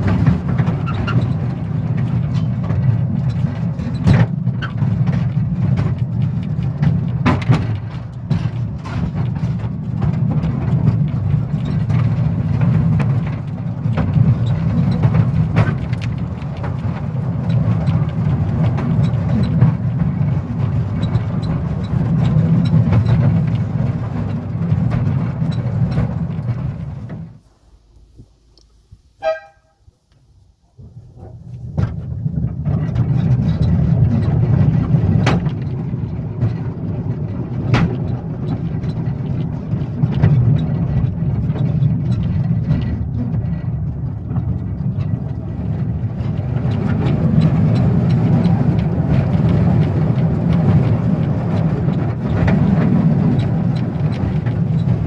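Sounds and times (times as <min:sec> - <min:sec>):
train rumbling: 0:00.0 - 0:29.7, 0:30.3 - 0:55.0
train clicks: 0:00.0 - 0:30.3, 0:30.9 - 0:55.0
high train toot: 0:29.2 - 0:29.9.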